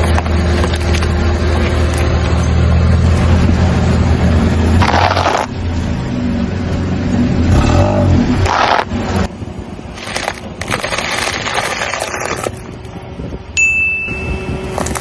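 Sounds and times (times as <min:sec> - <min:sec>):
car engine running slowly: 0:00.0 - 0:11.3.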